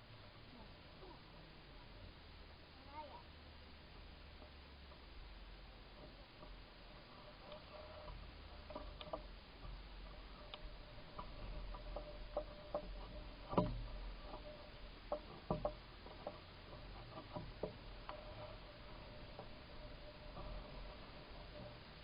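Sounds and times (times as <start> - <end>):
faint hum and low rumble: 0.0 - 22.0
bicycle ticking and knocking: 9.0 - 20.5.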